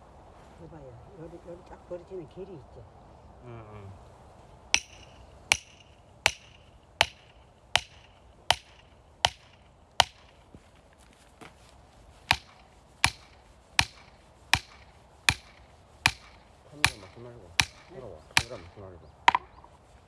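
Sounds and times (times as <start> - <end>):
hammer blows on metal wedge: 12.2 - 19.7.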